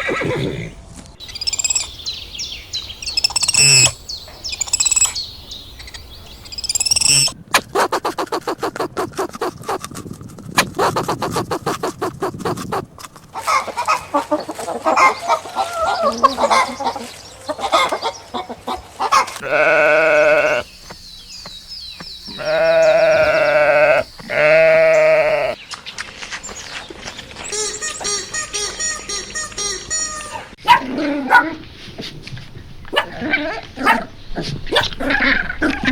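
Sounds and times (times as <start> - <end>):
chirping calls: 0.0 - 7.4, 13.4 - 25.6
livestock bleating: 19.4 - 20.7, 22.3 - 25.6.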